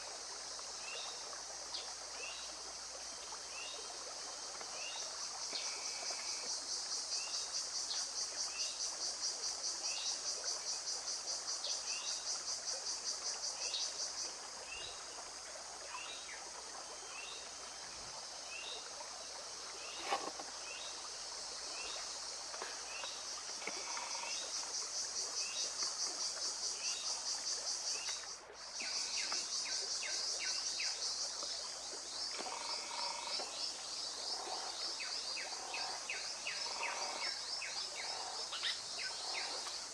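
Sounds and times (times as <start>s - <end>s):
pulsing insect drone: 19.1s - 39.9s.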